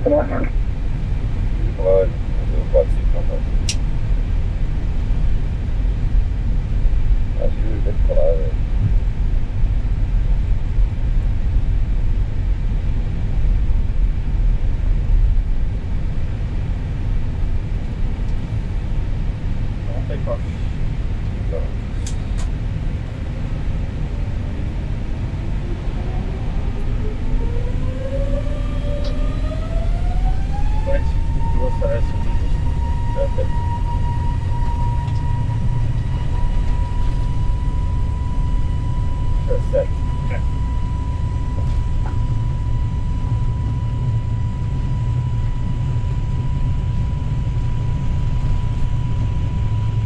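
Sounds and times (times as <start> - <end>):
jet engines rumbling: 0.0 - 50.0
engine whine rising in pitch: 14.4 - 50.0.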